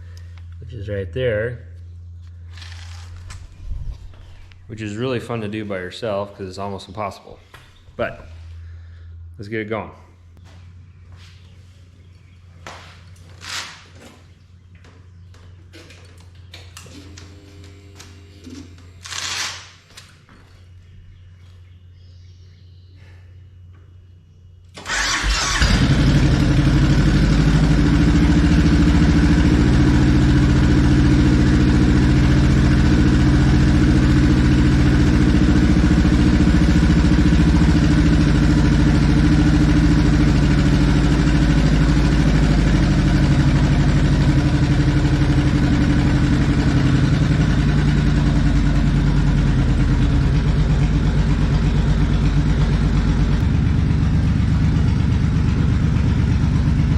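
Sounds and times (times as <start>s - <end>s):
motorcycle engine starting: 2.1s - 5.2s, 24.7s - 56.9s
motorcycle engine idling: 7.6s - 9.4s, 24.8s - 56.9s.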